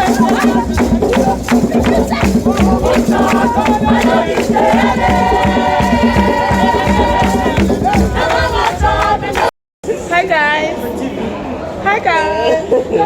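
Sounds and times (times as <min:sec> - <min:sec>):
music with singing voices: 0:00.0 - 0:09.5.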